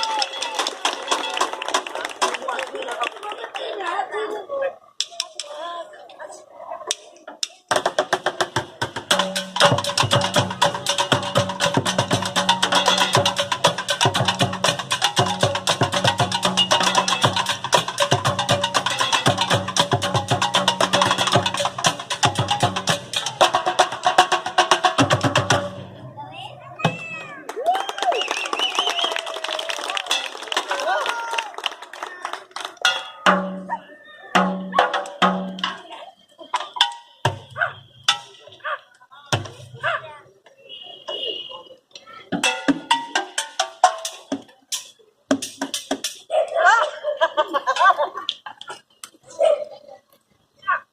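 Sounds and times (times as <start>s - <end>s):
percussion ensemble drumming: 7.4s - 27.4s, 29.8s - 31.3s, 32.8s - 38.6s, 39.3s - 39.9s, 42.3s - 46.3s.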